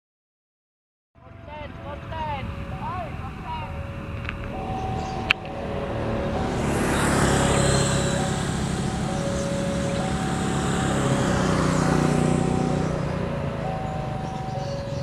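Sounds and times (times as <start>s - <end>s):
two-tone warning chime: 1.5s - 15.0s.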